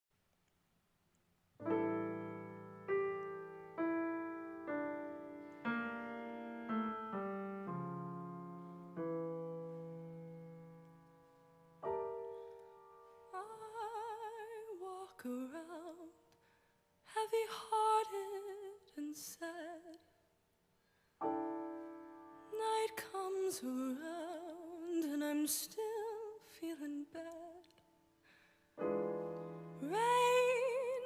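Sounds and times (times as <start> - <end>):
piano chords: 1.6 - 14.7, 21.2 - 23.4, 28.8 - 31.0
person singing: 29.8 - 31.0.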